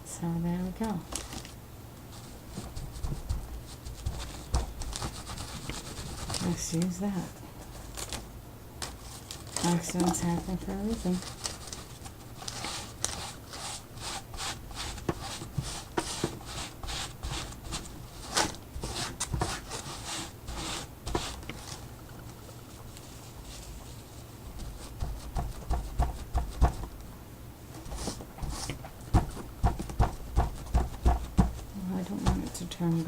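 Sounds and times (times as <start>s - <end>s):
brush tapping and dabbing paint: 2.2s - 6.9s, 9.9s - 21.6s, 22.4s - 27.1s, 27.9s - 33.0s
dull knocks on work table: 29.1s - 31.6s.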